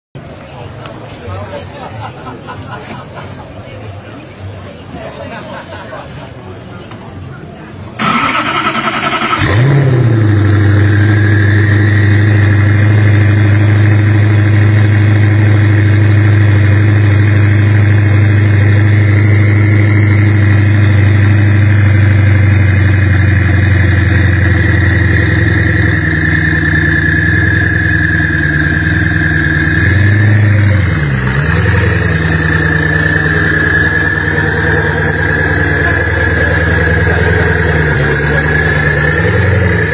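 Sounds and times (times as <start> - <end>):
car engine idling: 7.9 - 39.9
high turbo whistle: 23.1 - 39.9.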